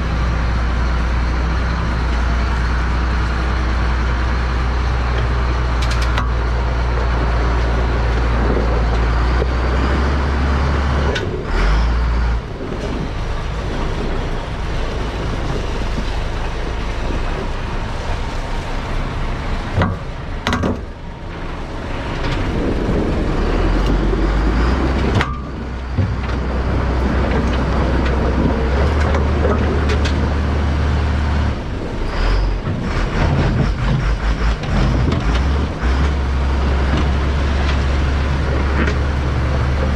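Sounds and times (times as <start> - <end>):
large vehicle engine running: 0.0 - 39.9.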